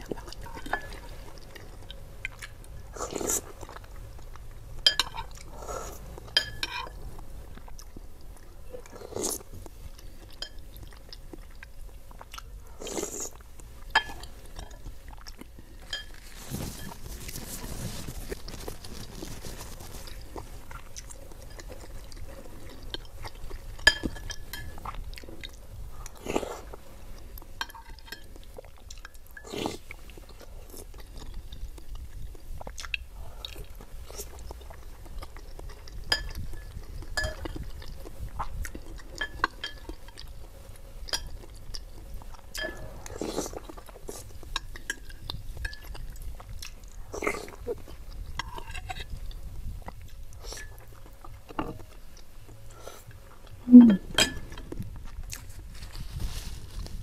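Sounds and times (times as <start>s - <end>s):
person chewing: 0.0s - 55.8s
cutlery clinking on glass bowl: 4.8s - 5.4s, 6.3s - 7.0s, 15.9s - 17.0s, 23.8s - 24.8s, 36.1s - 37.6s, 42.6s - 43.2s, 54.2s - 54.6s.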